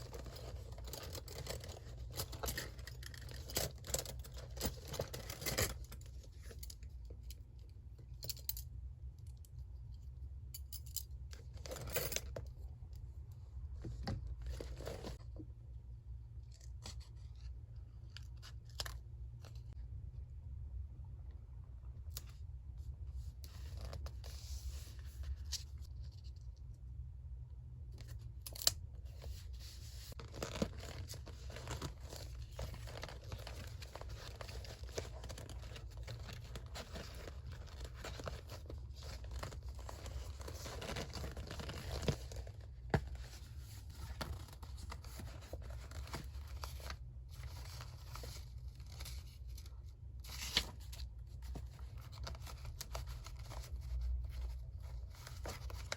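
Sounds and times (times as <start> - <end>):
paper rustling and scraping: 29.0 - 55.9.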